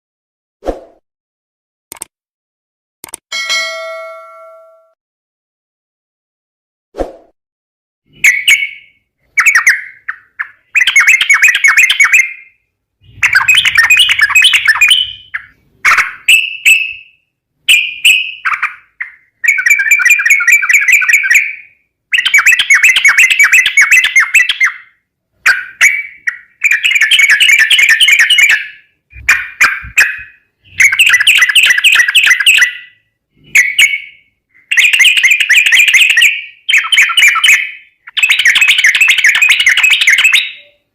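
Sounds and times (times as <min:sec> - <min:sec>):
bird singing: 0:08.1 - 0:40.9.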